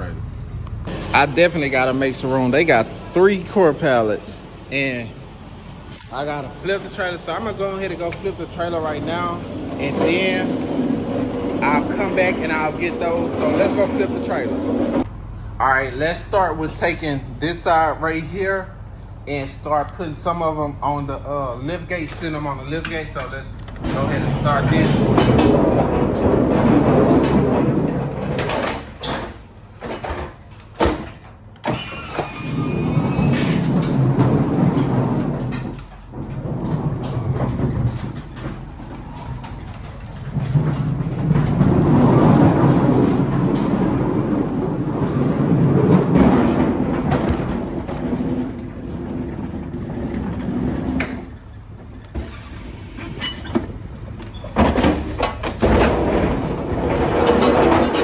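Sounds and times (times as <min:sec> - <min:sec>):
pallet jack rolling rumble: 0:00.0 - 0:58.0
short squeak: 0:31.7 - 0:33.7, 0:51.3 - 0:53.6.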